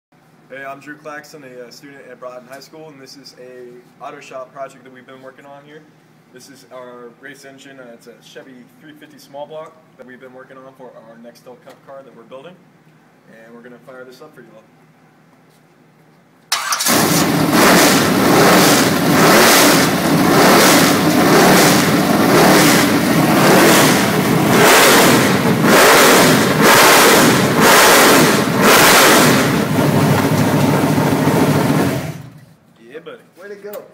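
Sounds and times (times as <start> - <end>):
race engine revving: 16.6 - 32.4.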